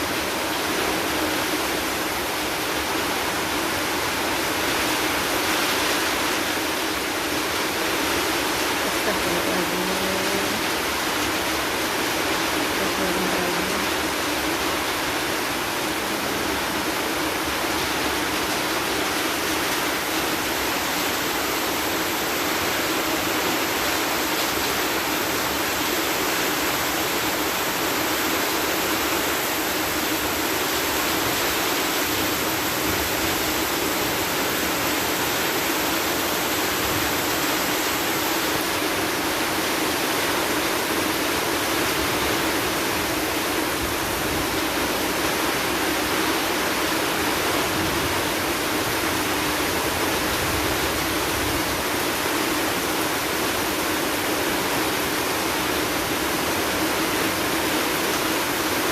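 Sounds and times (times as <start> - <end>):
heavy rain: 0.0 - 58.9.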